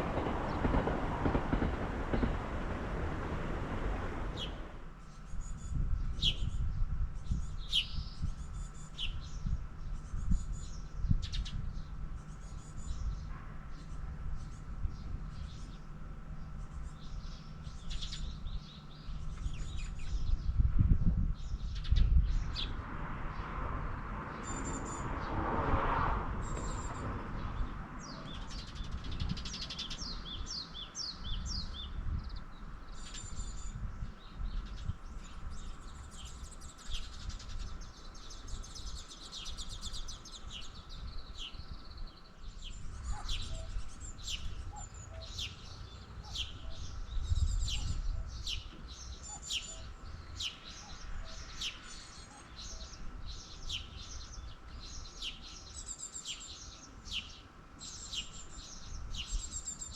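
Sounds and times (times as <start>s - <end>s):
rushing noise: 0.0s - 4.9s
small birds chirping and trilling: 4.3s - 22.8s, 26.4s - 59.9s.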